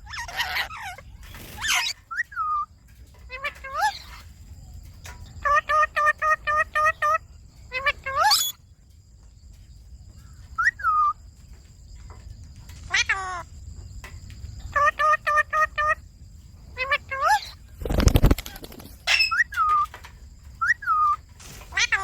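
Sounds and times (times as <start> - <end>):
parakeets calling: 0.0 - 4.3, 5.4 - 8.6, 14.6 - 16.1, 16.7 - 17.6, 18.2 - 20.0, 20.6 - 22.0.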